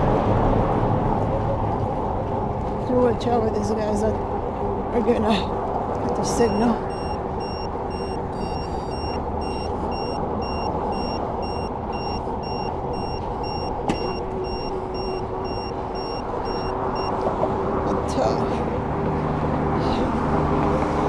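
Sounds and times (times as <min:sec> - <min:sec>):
traffic noise: 0:00.0 - 0:21.0
crossing signal beeping: 0:06.1 - 0:17.2
crossing signal chirps: 0:06.2 - 0:17.2.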